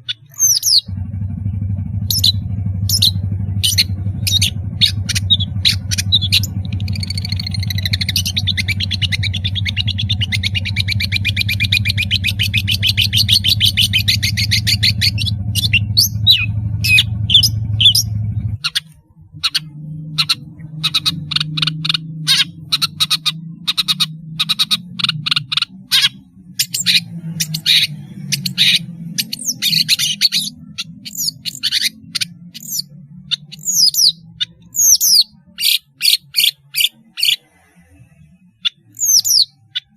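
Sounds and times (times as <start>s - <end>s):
bird chattering trill: 0.0s - 1.0s, 2.0s - 37.6s, 38.6s - 39.9s
sharp bird calls and whistles: 0.0s - 1.0s, 2.0s - 39.9s
steady low hum: 0.0s - 39.9s.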